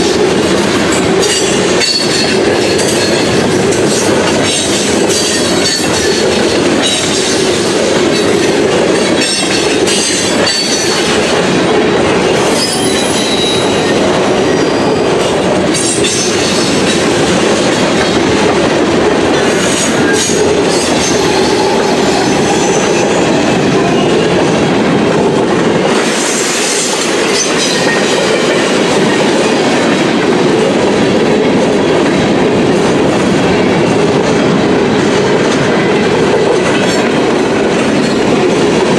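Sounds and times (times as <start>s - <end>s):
steel wheels rumbling on rail: 0.0s - 38.9s
faint high wheel squeals: 12.5s - 13.8s.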